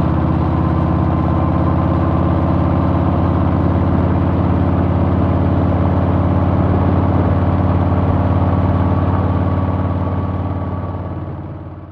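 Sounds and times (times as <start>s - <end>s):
motorcycle engine running: 0.0s - 11.9s.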